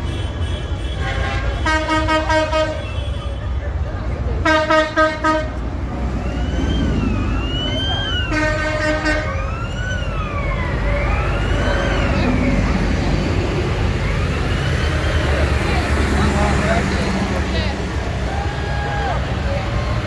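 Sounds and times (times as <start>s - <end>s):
horn toots: 0.0s - 3.5s, 4.4s - 7.3s, 8.2s - 9.4s
tractor engines rumbling: 0.0s - 20.0s
siren wailing: 5.7s - 16.4s.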